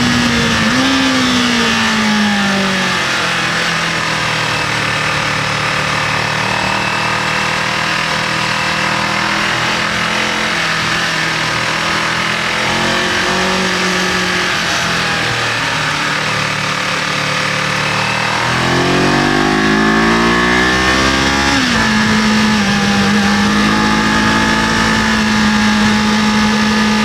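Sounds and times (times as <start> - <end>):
wind noise: 0.0 - 2.4
motorcycle engine running: 0.0 - 27.0.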